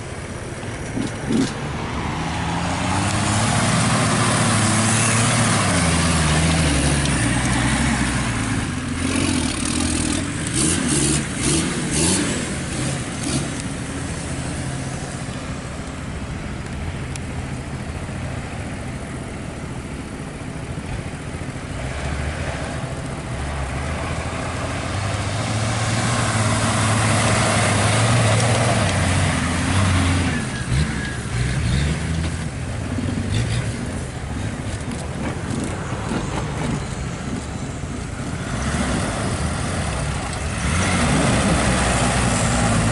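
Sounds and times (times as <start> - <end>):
jeep engine revving: 0.8 - 15.6, 21.6 - 36.8, 37.7 - 42.9
motorbike engine revving: 0.9 - 1.6.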